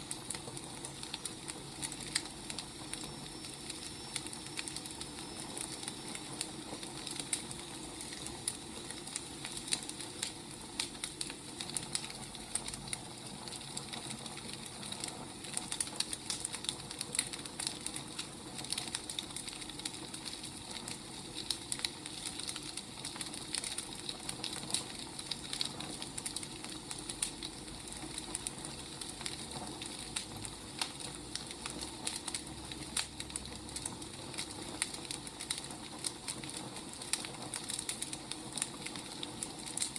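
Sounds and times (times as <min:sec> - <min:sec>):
firewood crackling: 0:00.0 - 0:39.9.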